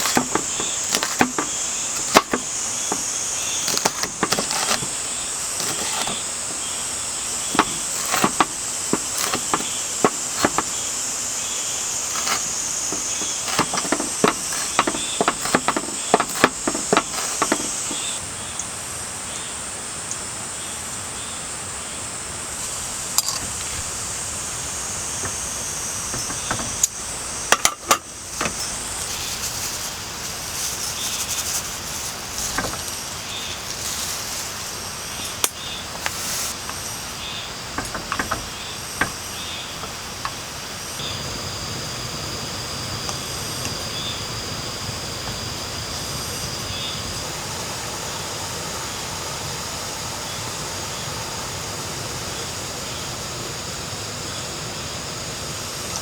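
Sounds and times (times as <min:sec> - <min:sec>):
sharp knocks and taps: 0:00.0 - 0:05.0, 0:07.5 - 0:10.8, 0:12.0 - 0:18.2, 0:37.8 - 0:39.2
cicadas and insects shrilling: 0:00.0 - 0:56.0.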